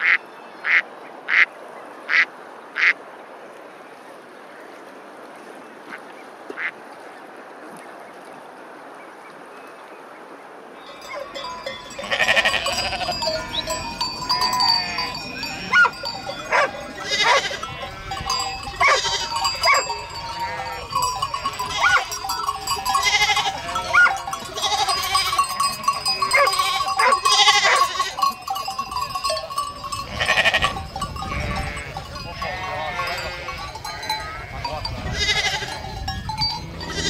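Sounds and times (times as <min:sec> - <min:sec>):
sheep bleating: 0:10.9 - 0:35.9, 0:36.7 - 0:37.0
livestock bells ringing: 0:10.9 - 0:37.0.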